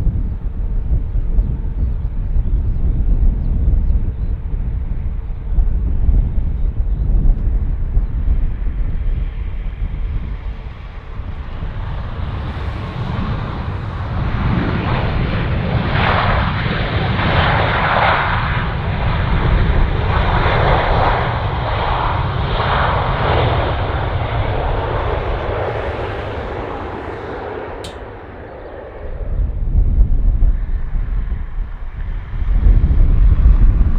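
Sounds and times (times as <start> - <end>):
jet engines roaring: 7.6 - 33.9.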